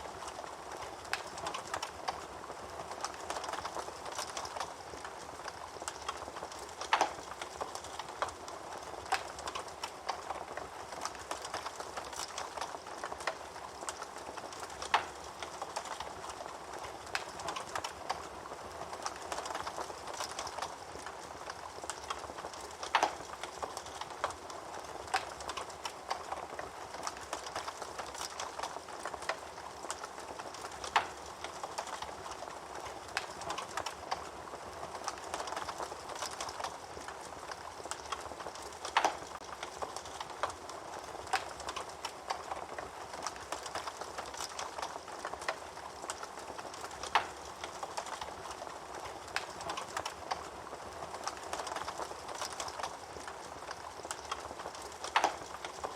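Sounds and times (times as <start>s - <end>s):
wood fire crackling: 0.0s - 55.9s
fire popping: 0.1s - 55.9s.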